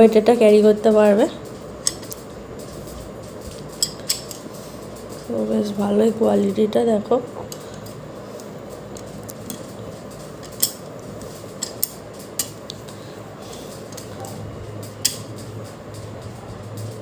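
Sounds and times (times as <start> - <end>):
low steady hum: 0.0 - 17.0
laptop stand parts clicking: 1.8 - 4.5, 11.5 - 12.8.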